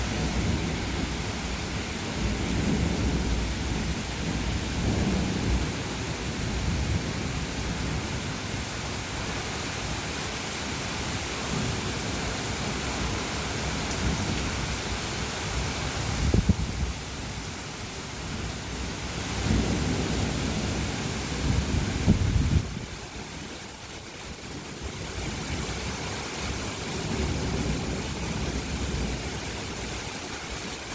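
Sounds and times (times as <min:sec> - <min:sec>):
rain falling: 0:00.0 - 0:30.9
rolling thunder: 0:16.1 - 0:17.0, 0:19.3 - 0:22.9.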